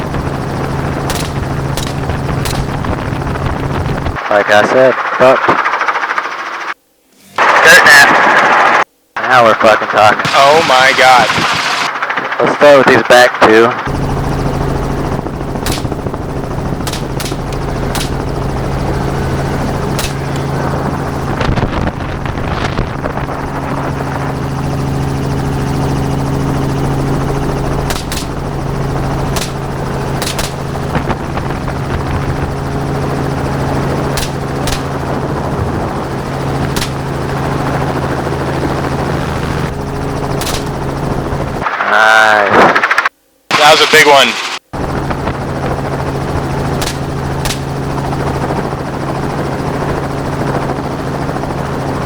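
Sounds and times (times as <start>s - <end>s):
helicopter in flight: 0.0s - 52.0s
gunshots: 1.1s - 3.0s, 15.6s - 20.8s, 27.8s - 28.6s, 29.2s - 31.2s, 34.1s - 35.1s, 36.6s - 37.4s, 40.4s - 40.9s, 46.8s - 47.8s.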